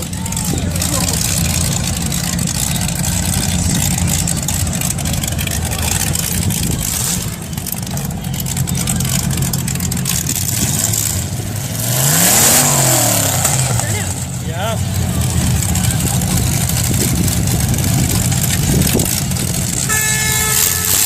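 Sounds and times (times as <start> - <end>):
car engines running: 0.0 - 21.0
engine revving hard: 8.9 - 21.0.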